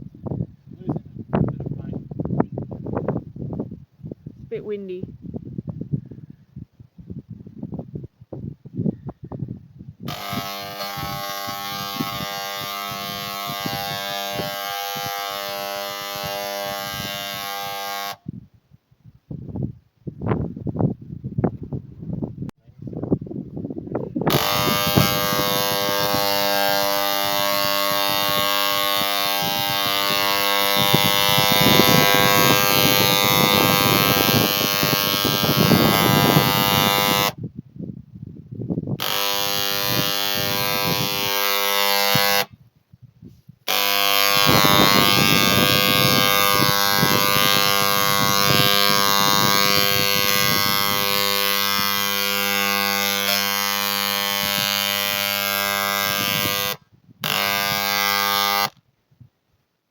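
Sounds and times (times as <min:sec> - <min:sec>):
machine motor buzzing hum: 0:10.1 - 0:18.2, 0:24.3 - 0:37.4, 0:39.0 - 0:42.5, 0:43.7 - 0:58.8.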